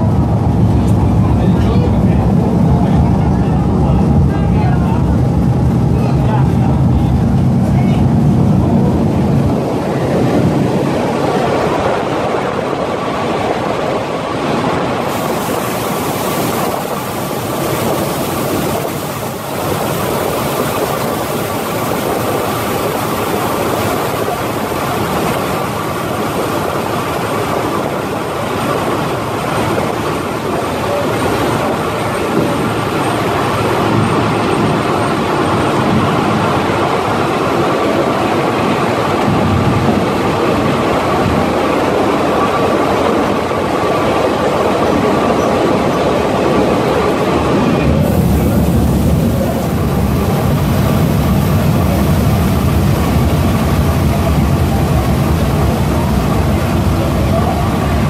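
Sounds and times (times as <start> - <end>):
train wheels on rails: 0.0 - 58.0.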